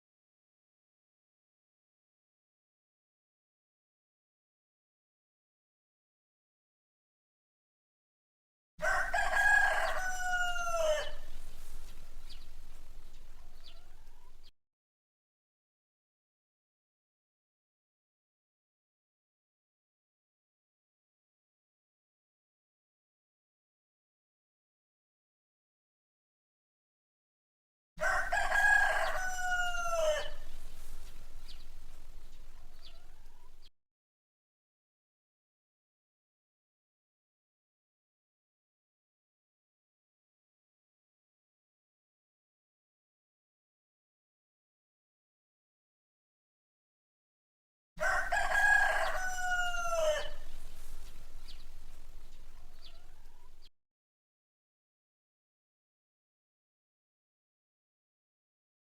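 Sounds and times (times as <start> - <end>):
rooster crowing: 8.8 - 14.5, 28.0 - 33.7, 48.0 - 53.7
low background noise: 9.0 - 14.5, 28.1 - 33.7, 48.1 - 53.7
faint chirps: 50.4 - 53.7.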